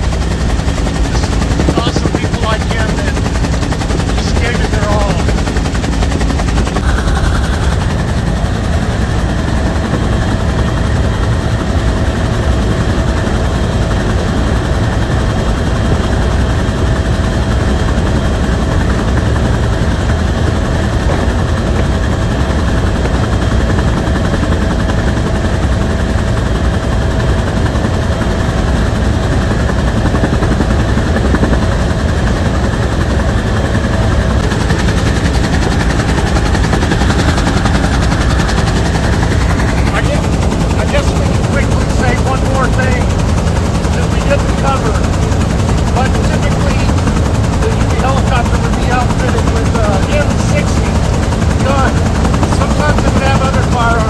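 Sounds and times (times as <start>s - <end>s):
steady whine: 0.0s - 12.3s, 29.4s - 54.0s
helicopter rotor chopping: 0.0s - 54.0s.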